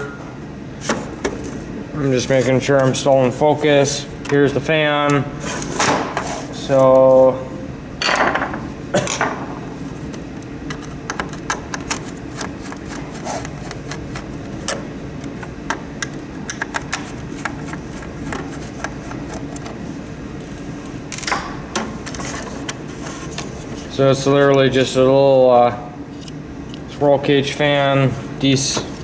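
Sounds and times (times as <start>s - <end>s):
steady low hum: 0.0s - 29.0s
plastic parts clicking and tapping: 10.4s - 19.8s.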